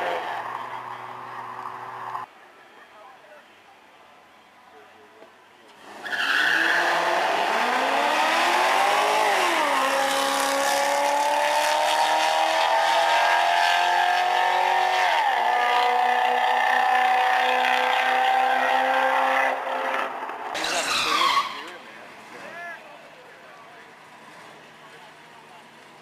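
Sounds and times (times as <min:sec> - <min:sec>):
car engine accelerating hard: 0:06.6 - 0:20.1.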